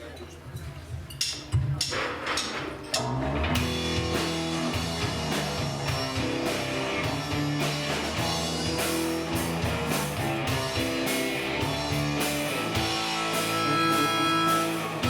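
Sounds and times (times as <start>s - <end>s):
rock music with guitar and drums: 3.0s - 15.0s.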